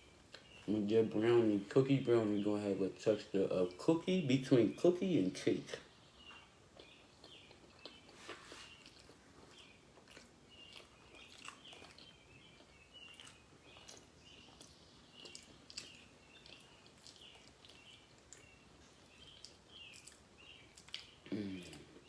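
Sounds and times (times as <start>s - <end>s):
chewing with mouth clicks: 0.2s - 0.7s, 5.8s - 22.0s.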